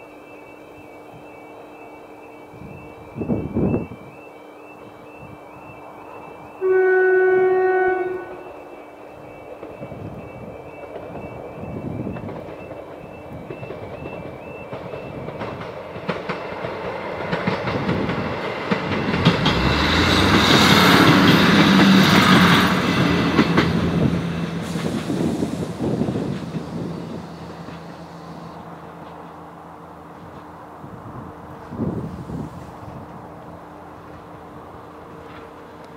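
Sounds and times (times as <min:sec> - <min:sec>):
train rumbling past: 0:00.0 - 0:35.9
level crossing alarm warbling: 0:00.1 - 0:15.4
diesel engine hum: 0:18.2 - 0:35.9.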